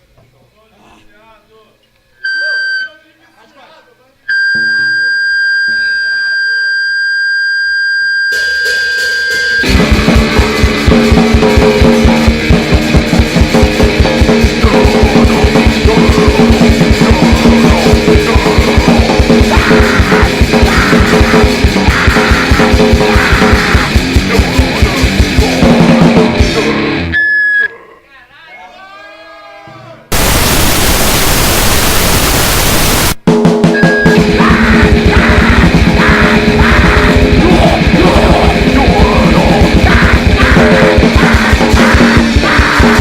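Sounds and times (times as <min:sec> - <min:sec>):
very fast drumming: 0:08.4 - 0:26.6, 0:30.1 - 0:43.0
distorted guitar: 0:08.4 - 0:27.2, 0:30.1 - 0:43.0
steady high tone: 0:30.1 - 0:33.2.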